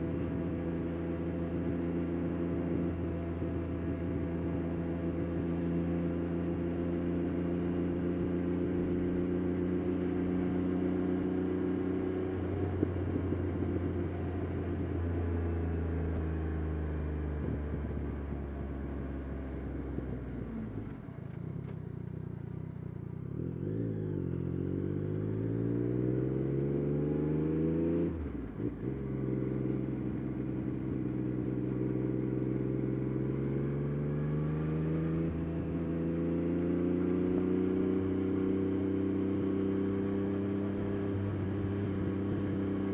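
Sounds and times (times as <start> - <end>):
motorcycle engine revving: 23.2 - 42.9.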